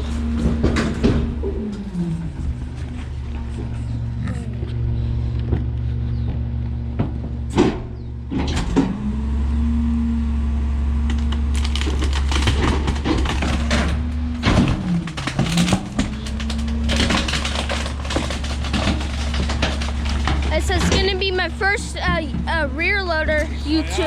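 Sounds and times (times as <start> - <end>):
garbage truck engine and hydraulic hum: 0.0 - 24.0
load crackling and snapping: 11.0 - 22.5.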